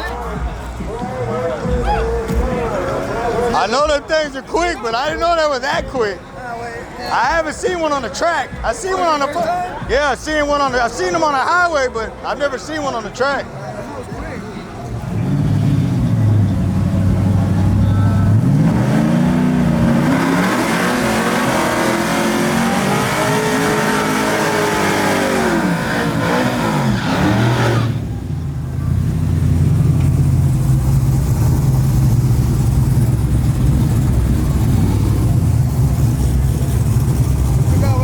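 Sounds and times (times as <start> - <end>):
engine revving up and down: 15.0 - 38.0.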